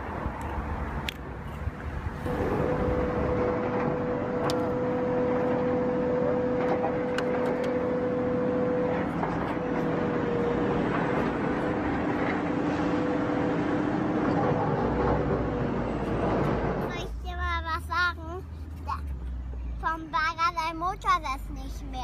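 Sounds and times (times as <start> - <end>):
droning engine running: 0.0 - 16.9.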